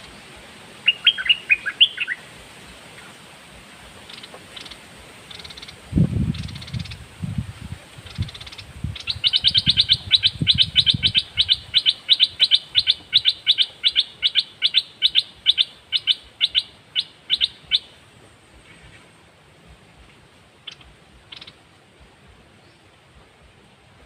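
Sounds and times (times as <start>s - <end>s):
songbird high chirps: 0.0s - 2.3s, 4.1s - 7.0s, 8.0s - 19.2s, 20.6s - 21.6s.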